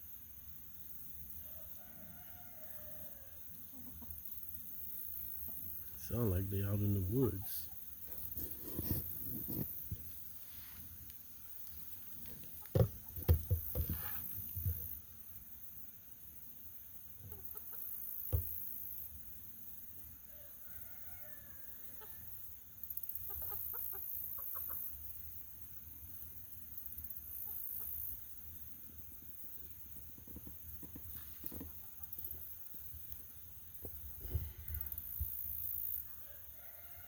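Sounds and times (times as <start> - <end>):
chickens clucking: 3.6 - 4.4, 17.2 - 18.0, 23.0 - 25.2, 30.8 - 32.9.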